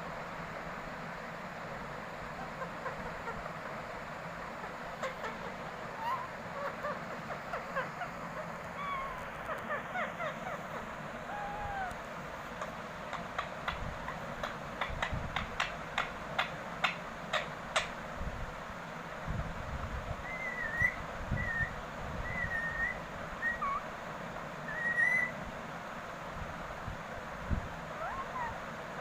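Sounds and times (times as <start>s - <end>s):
parrot whistling: 5.9s - 8.1s, 8.8s - 10.6s, 11.3s - 12.0s, 20.2s - 23.8s, 24.7s - 25.4s, 28.0s - 28.6s.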